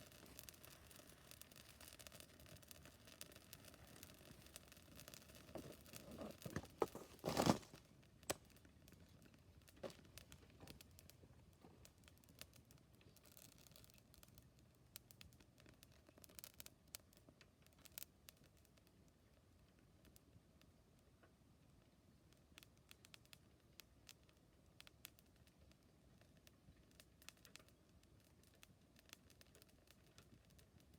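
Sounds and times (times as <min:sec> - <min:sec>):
wood fire crackling with pops: 0:00.0 - 0:30.9
rasping crumpling sounds: 0:05.0 - 0:08.4.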